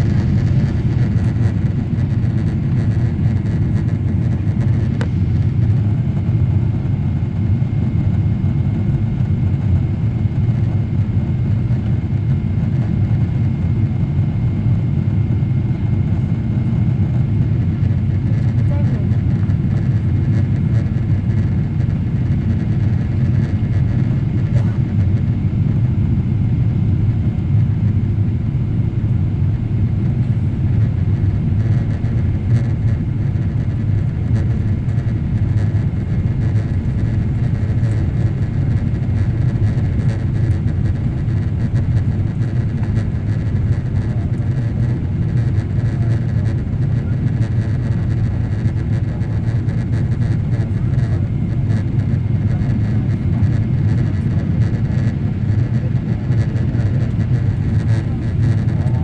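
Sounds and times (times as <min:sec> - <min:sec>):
airplane cabin rumble: 0:00.0 - 0:59.0.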